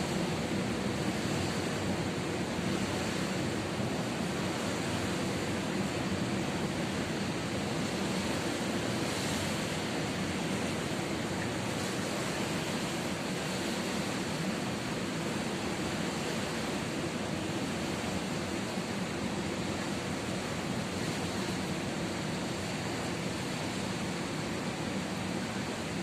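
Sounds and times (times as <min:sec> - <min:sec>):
ocean surf roaring: 0:00.0 - 0:26.0.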